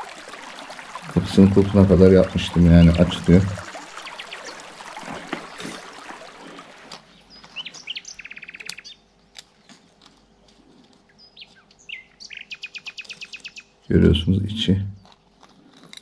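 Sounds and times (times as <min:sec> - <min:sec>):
songbird chirping and trilling: 0:01.4 - 0:04.7, 0:06.4 - 0:09.8, 0:11.1 - 0:14.1.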